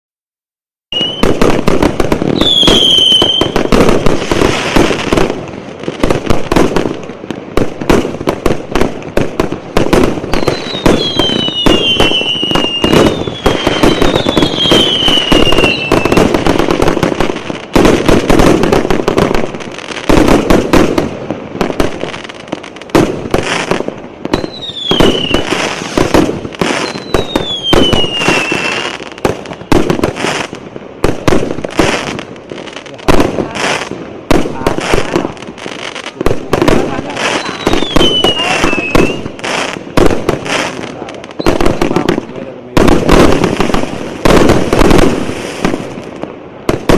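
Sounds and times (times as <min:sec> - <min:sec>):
falling firework whistles: 0:00.9 - 0:01.5, 0:02.3 - 0:05.0, 0:10.3 - 0:16.4, 0:24.3 - 0:30.5, 0:37.2 - 0:39.8
fireworks bangs and crackle: 0:00.9 - 0:46.9.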